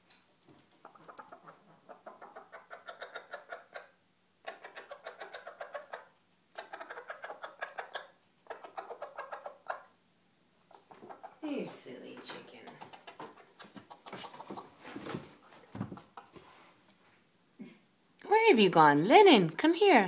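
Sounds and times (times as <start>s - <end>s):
chicken clucking rapidly: 0.6s - 10.0s, 10.6s - 16.4s.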